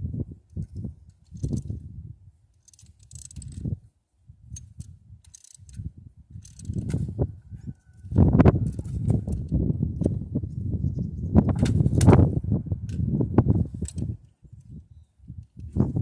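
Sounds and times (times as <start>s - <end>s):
metallic tool clicks: 4.6s - 5.8s.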